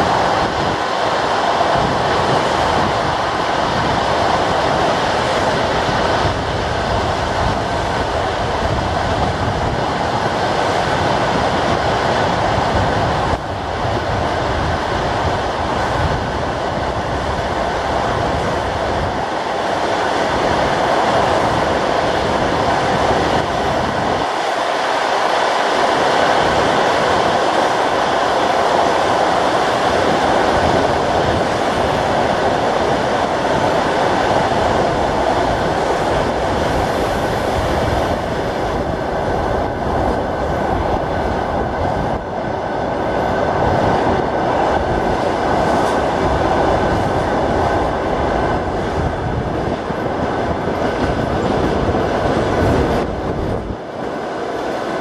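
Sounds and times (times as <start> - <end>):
train wheels on rails: 14.2 - 55.0.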